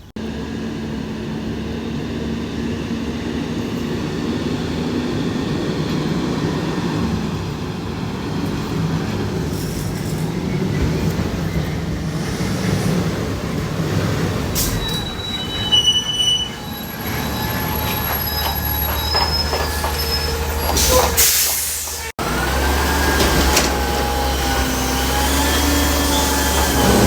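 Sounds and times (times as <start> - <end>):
heavy vehicle rumbling past: 0.2 - 27.0
high metallic squeals: 14.6 - 21.4, 23.7 - 27.0.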